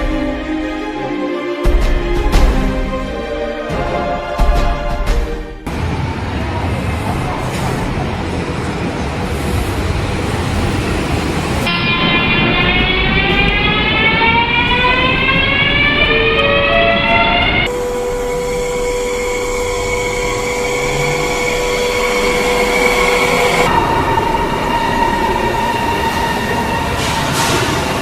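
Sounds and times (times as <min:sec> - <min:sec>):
train rumble: 0:00.0 - 0:28.0
electric train motor whine: 0:11.8 - 0:26.9.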